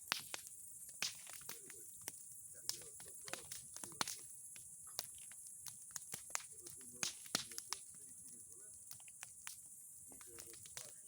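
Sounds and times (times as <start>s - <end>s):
bonfire crackling and popping: 0.0s - 11.0s.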